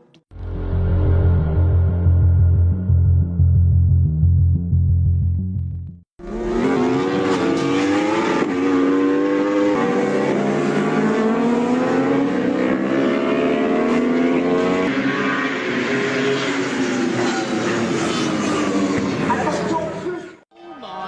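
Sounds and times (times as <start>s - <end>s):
racing motorcycle engine revving: 6.2s - 19.4s.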